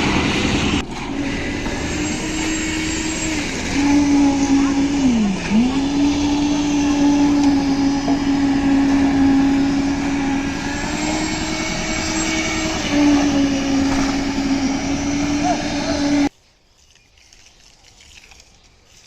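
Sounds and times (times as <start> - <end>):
construction machinery humming: 0.0 - 16.3
construction site noise: 0.0 - 16.3.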